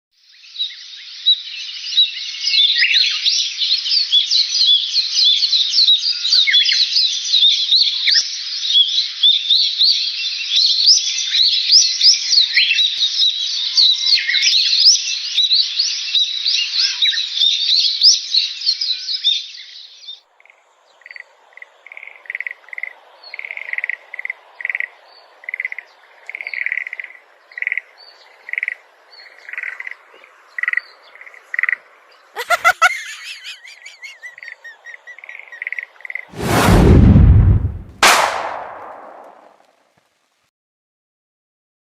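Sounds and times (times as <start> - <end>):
chorus of high animal chirps: 32.3 - 35.8.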